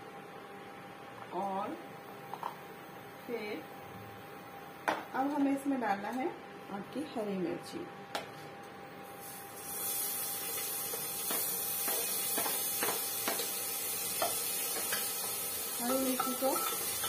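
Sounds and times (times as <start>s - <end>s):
oil sizzling in a pan: 9.1s - 17.0s
spoon tapping plate and pan: 11.2s - 13.5s, 15.8s - 17.0s.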